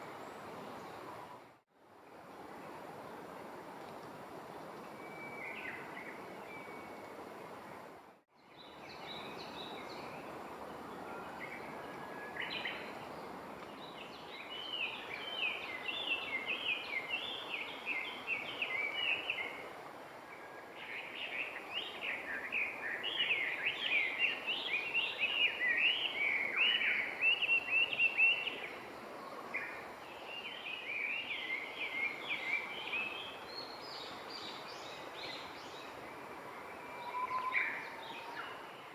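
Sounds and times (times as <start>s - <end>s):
outdoor background hiss: 0.0s - 38.9s
songbird chattering song: 20.8s - 28.7s.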